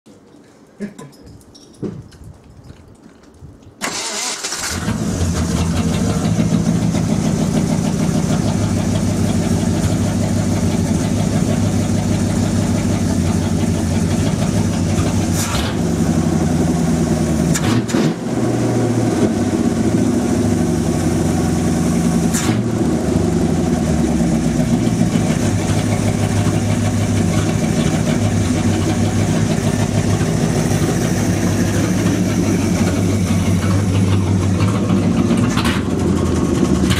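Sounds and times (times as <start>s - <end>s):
engine cranking and starting: 3.8s - 16.0s, 17.4s - 18.6s, 24.6s - 36.9s
car engine idling: 3.8s - 36.9s.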